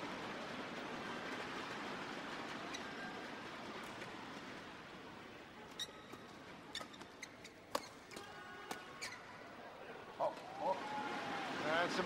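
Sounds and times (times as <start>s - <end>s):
shoes squeaking on court: 5.6s - 9.4s.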